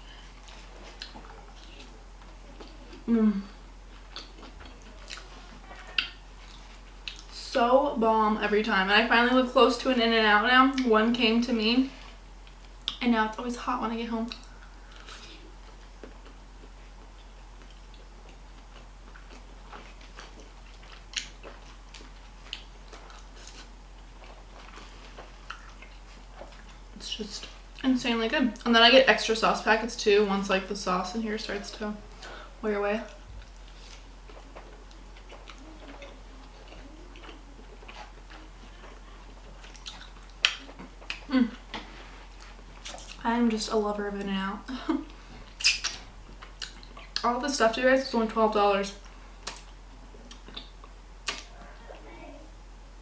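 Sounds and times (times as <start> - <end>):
person chewing fries: 0.2 - 3.1, 3.8 - 7.3, 14.3 - 27.0, 33.4 - 43.2, 45.5 - 47.2
sharp mouth click: 45.6 - 46.0.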